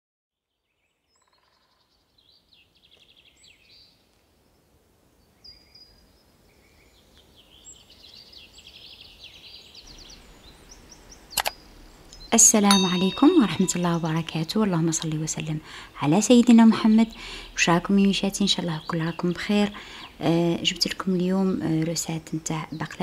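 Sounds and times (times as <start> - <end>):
small birds chirping and trilling: 5.2 - 14.3, 16.0 - 21.2.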